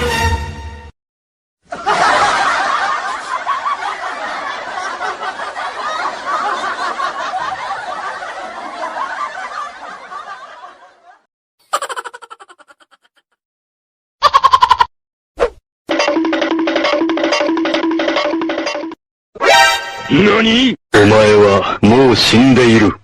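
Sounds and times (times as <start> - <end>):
crowd laughing: 1.6 - 13.4.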